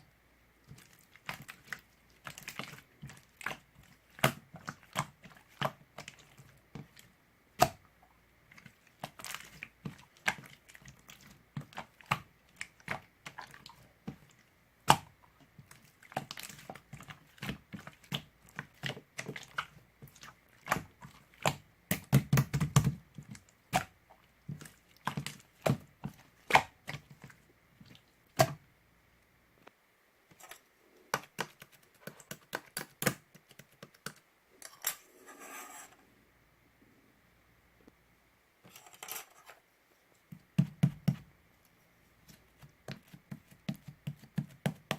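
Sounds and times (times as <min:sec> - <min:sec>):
objects being handled: 0:30.3 - 0:36.0, 0:38.6 - 0:44.9.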